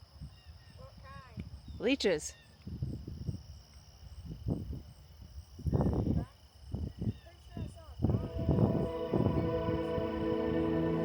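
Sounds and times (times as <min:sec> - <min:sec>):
faint pulsing note: 0:08.1 - 0:11.0.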